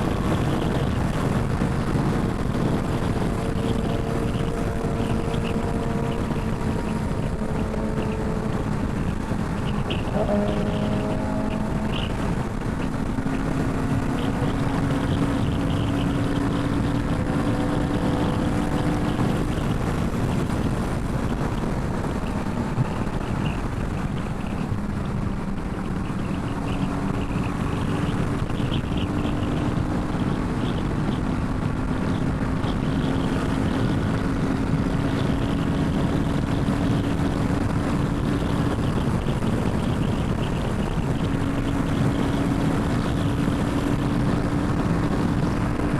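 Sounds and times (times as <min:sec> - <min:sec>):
motorcycle engine cruising: 0:00.0 - 0:45.9
wind rumble on microphone: 0:00.0 - 0:45.9.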